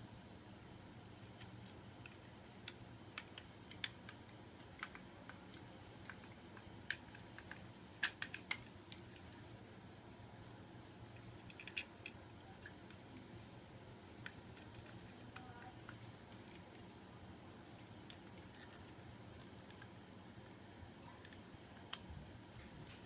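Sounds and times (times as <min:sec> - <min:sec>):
small fan parts clicking: 0:01.2 - 0:09.4, 0:11.1 - 0:13.3, 0:14.1 - 0:20.5.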